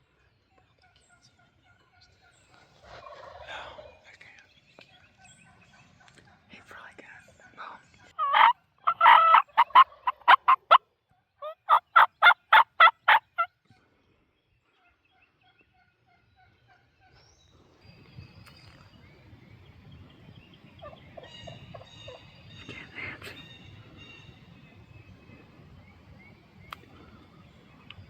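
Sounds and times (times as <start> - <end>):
wild turkey gobbling: 0.8 - 4.0, 7.4 - 10.8, 11.4 - 13.5, 14.8 - 17.2, 20.8 - 24.4.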